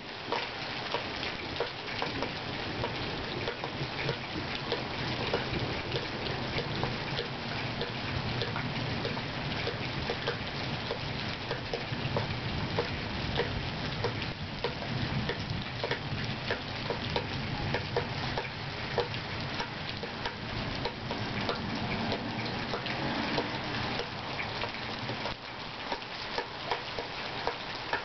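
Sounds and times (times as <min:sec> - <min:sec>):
rain falling: 0:00.0 - 0:28.0
drips on a hard surface: 0:00.2 - 0:28.0.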